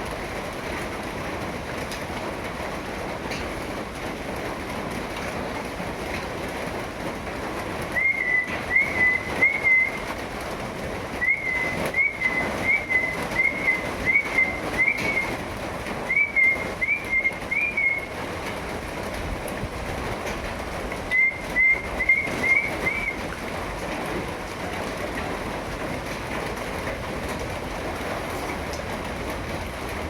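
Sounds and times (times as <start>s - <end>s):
rain hissing: 0.0s - 30.0s
bird whistling call: 8.0s - 10.1s, 11.2s - 15.4s, 16.1s - 18.1s, 21.1s - 23.2s.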